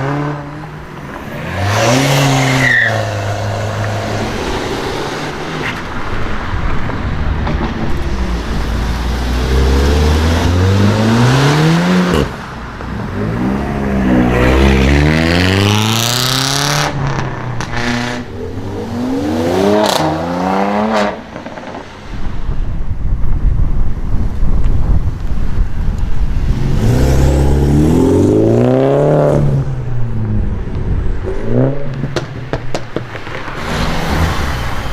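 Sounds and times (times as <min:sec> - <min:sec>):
sports cars accelerating hard: 0:07.8 - 0:21.9.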